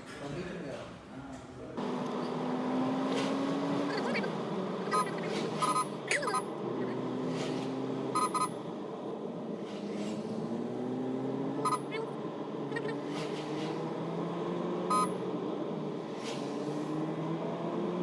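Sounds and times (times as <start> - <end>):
vehicle engine running: 1.8 - 18.0
high-pitched horn beeps: 4.9 - 6.5, 8.2 - 8.6, 11.6 - 12.1, 14.9 - 15.2.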